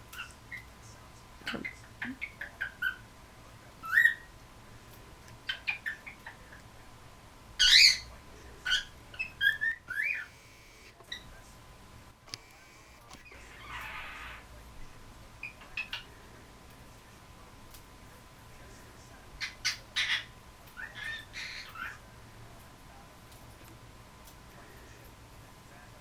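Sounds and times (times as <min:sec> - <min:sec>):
cockatiel chirping and whistling: 0:08.7 - 0:10.9.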